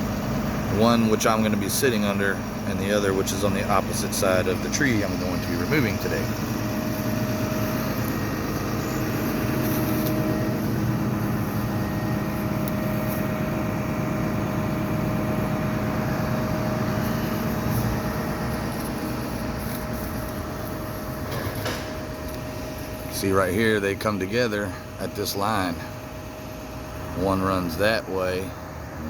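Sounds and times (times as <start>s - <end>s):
engine idling hum: 0.0s - 29.0s
faint steady whine: 0.0s - 29.0s.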